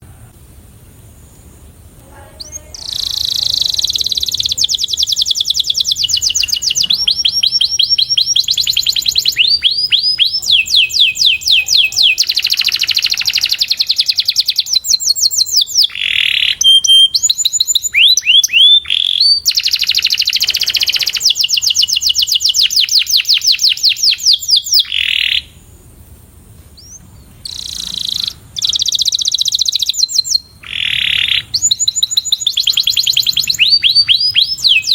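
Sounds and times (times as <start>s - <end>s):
canary singing trills: 2.0s - 26.2s, 26.8s - 34.9s.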